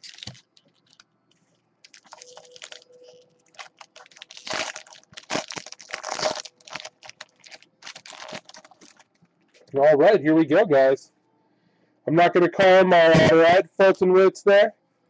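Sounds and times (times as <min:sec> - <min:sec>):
plastic wrapping crinkling and tearing: 0:00.0 - 0:01.0, 0:01.8 - 0:09.7.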